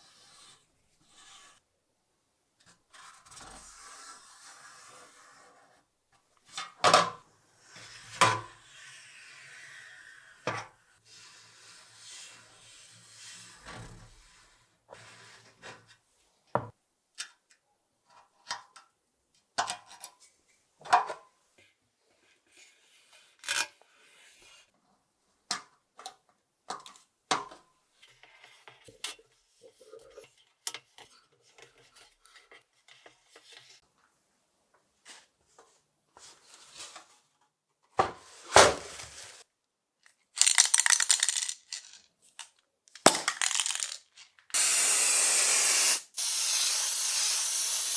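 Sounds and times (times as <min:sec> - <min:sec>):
small hard parts clicking: 0:40.4 - 0:42.0, 0:43.3 - 0:44.0
hissing burst: 0:44.6 - 0:47.9.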